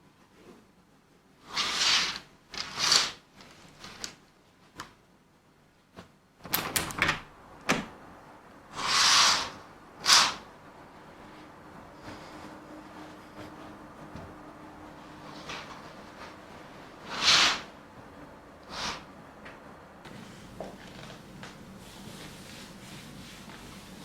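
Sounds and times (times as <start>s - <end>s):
short swishing slides: 8.7s - 10.5s.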